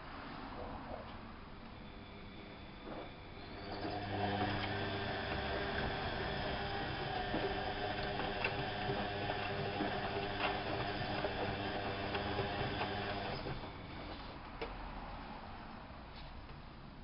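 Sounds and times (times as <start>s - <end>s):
washing machine motor hum: 1.7s - 14.4s.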